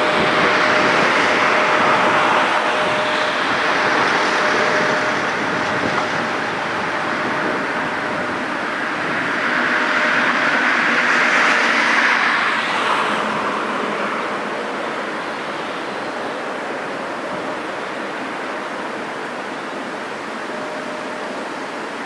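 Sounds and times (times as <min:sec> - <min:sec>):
vehicle passing by: 0:09.6 - 0:15.0.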